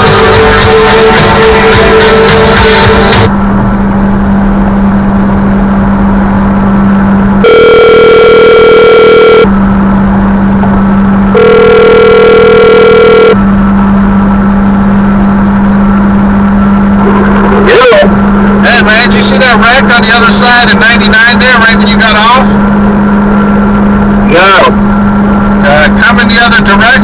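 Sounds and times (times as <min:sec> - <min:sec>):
steady low hum: 0:00.0 - 0:27.0
phone ringing tone: 0:07.4 - 0:09.5, 0:11.3 - 0:13.4.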